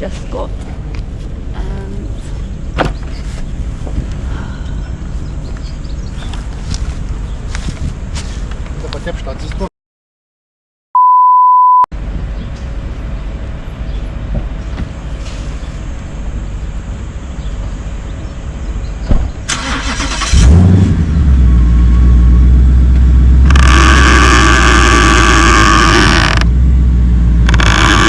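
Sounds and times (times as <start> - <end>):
short beep: 11.0 - 11.9
car engine starting and running: 19.4 - 28.0.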